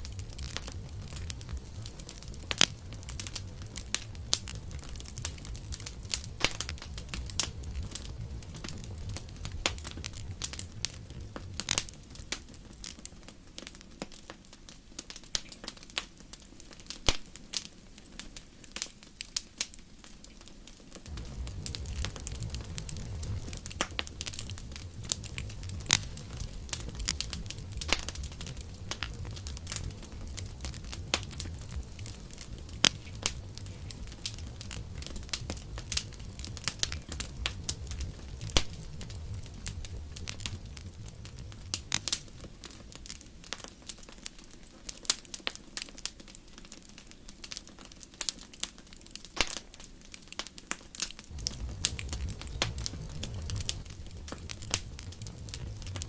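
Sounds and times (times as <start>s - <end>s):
low rumble: 0.0s - 12.2s, 21.1s - 43.0s, 51.3s - 56.0s
campfire crackling: 0.0s - 56.0s.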